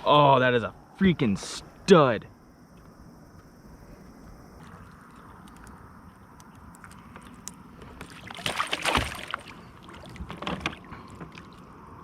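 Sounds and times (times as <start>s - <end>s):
rustling and water sloshing: 4.0s - 12.0s.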